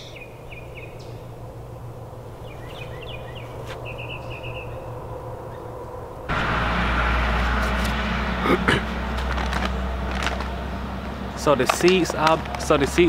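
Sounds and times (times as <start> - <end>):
small birds chirping: 0.0 - 6.0
low outdoor hum: 0.0 - 13.0
loud rush of noise: 5.0 - 13.0.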